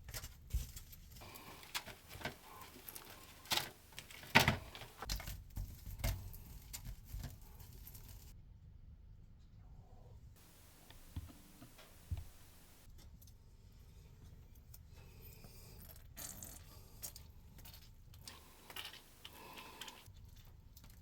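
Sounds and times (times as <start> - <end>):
faint clicks and rustles: 0.0 - 8.4, 10.4 - 21.0.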